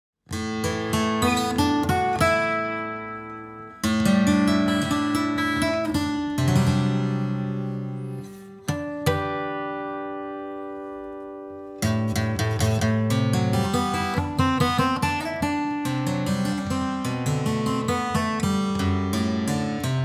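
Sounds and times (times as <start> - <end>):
acoustic guitar chords strummed: 0.3 - 20.0.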